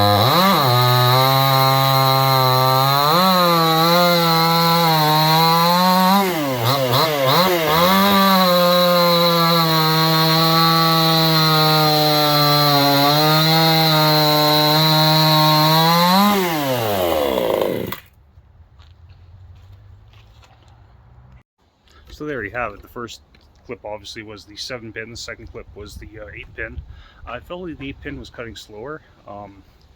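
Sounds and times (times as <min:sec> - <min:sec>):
chainsaw cutting at full throttle: 0:00.0 - 0:18.1.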